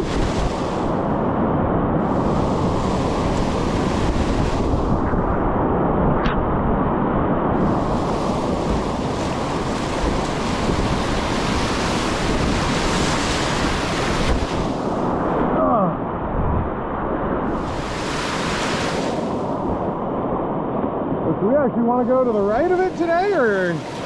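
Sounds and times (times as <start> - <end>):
wind buffeting microphone: 0.0 - 24.0
river rapids roaring: 7.6 - 16.1, 17.4 - 24.0.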